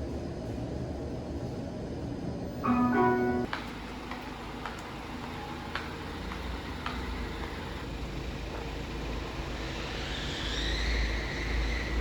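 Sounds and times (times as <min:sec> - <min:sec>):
faint rising whine: 0:07.0 - 0:12.0.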